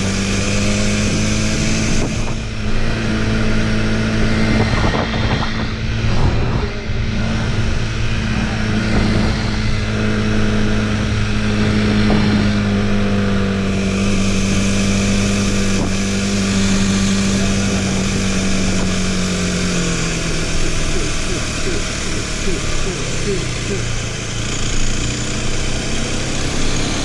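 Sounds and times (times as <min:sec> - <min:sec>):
motorcycle engine running: 0:00.0 - 0:27.0
wind rushing: 0:01.0 - 0:17.1.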